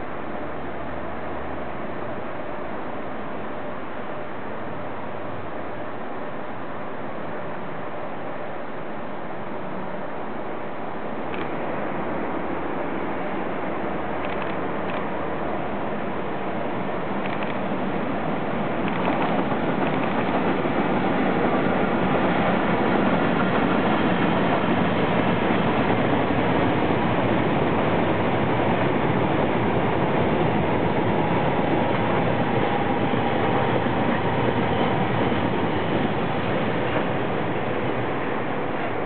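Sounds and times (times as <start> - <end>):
freight train wheels on rails: 0.0 - 39.0.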